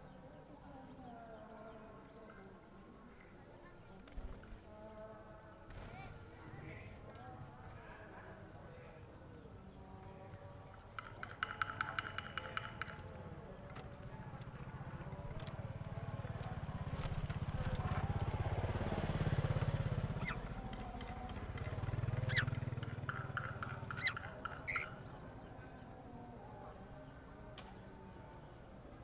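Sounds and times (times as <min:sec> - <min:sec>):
pulsing engine rumble: 0:12.8 - 0:25.7
high bird chirps: 0:20.1 - 0:20.6, 0:22.1 - 0:25.1.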